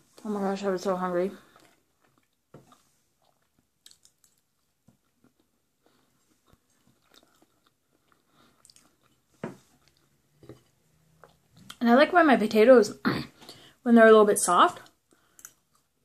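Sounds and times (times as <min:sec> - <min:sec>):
chewing food: 0:01.4 - 0:11.8
mouth clicks and smacks: 0:01.6 - 0:05.6, 0:06.5 - 0:11.8.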